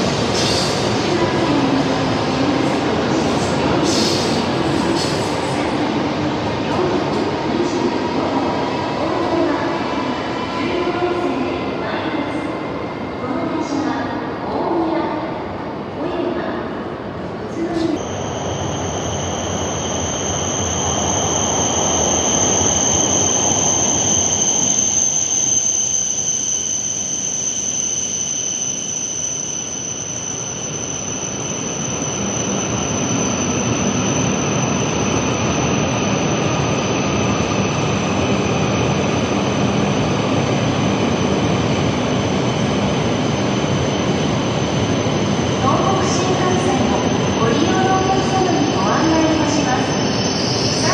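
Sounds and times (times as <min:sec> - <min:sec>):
train running into station: 0:00.0 - 0:50.9
high-pitched whine: 0:17.9 - 0:50.9.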